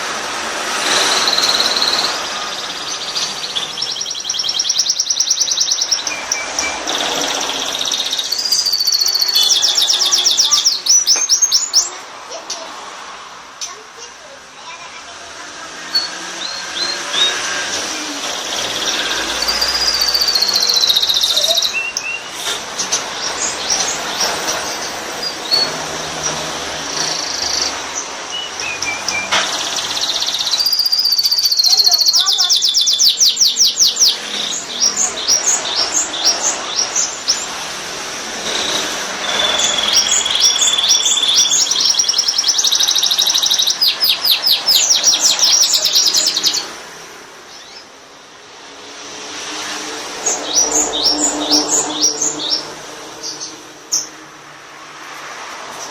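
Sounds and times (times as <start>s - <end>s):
canary singing trills: 0.6s - 12.8s, 15.8s - 46.8s.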